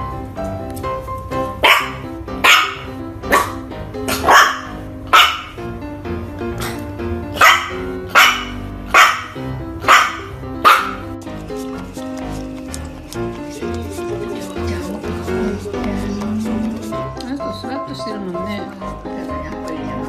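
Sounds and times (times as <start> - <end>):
background music: 0.0 - 20.0
puppy barking: 1.6 - 5.6, 6.5 - 11.2.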